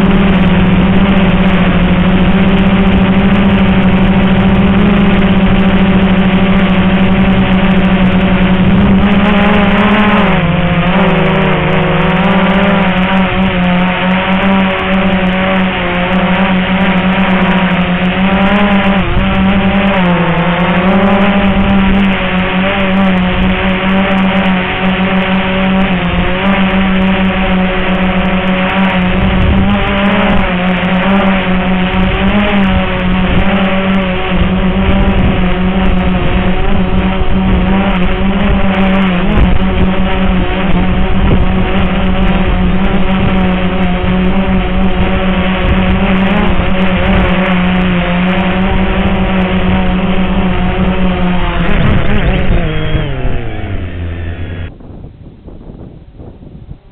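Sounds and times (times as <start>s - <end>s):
drone propellers humming: 0.0s - 56.9s.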